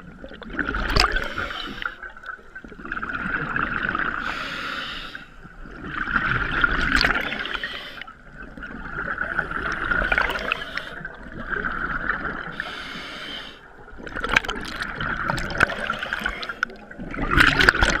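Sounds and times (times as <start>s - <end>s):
exhaled bubbles gurgling: 0.0s - 18.0s
regulator inhalation hiss: 4.2s - 5.3s, 7.3s - 8.1s, 12.6s - 13.7s.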